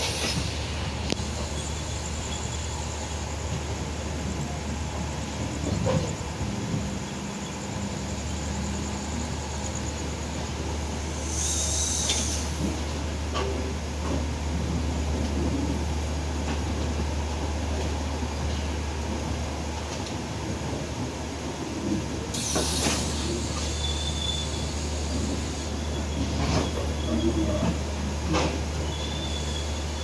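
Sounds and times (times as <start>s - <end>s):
train wheels rumbling on rail: 0.0s - 30.0s
short hiss: 11.2s - 12.7s, 22.4s - 25.1s.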